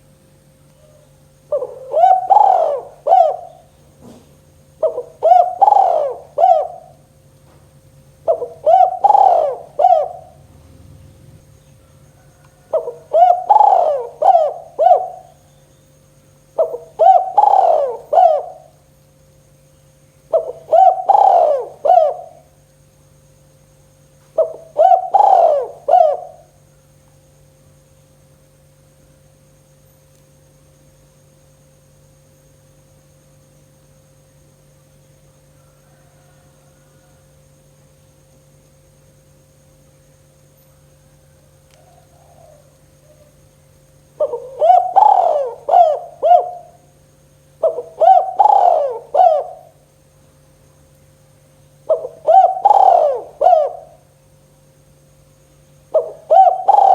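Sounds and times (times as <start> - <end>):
faint steady hum: 0.0 - 56.9
dove cooing: 0.8 - 15.6, 16.6 - 18.9, 20.3 - 22.6, 24.3 - 26.6, 35.6 - 37.3, 41.3 - 43.5, 44.1 - 46.9, 47.6 - 49.9, 51.8 - 54.2, 55.8 - 56.9.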